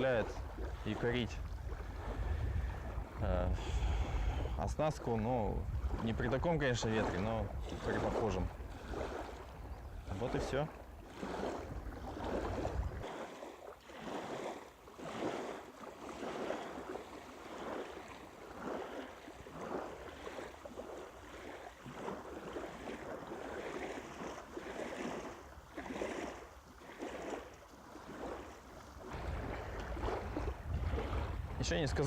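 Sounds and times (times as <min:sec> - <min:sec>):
wind rumble on microphone: 0:00.0 - 0:13.1, 0:28.1 - 0:32.0
small waves lapping: 0:00.0 - 0:32.0.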